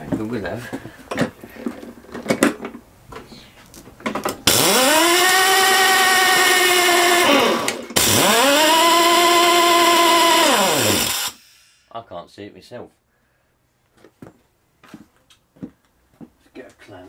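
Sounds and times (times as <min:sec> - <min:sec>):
electric drill whining: 0:04.4 - 0:11.8.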